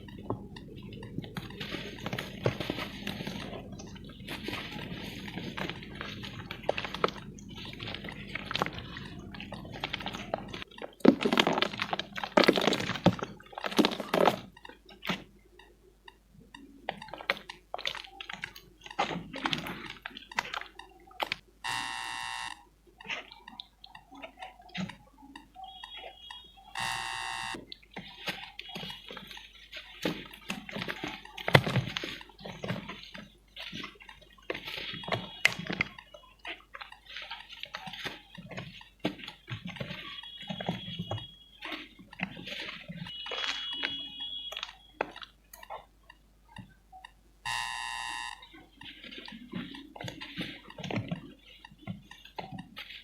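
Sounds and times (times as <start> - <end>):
cement crunching by hand: 0.1 - 14.6
short buzzing tone: 21.7 - 22.6, 26.8 - 27.6, 47.5 - 48.4.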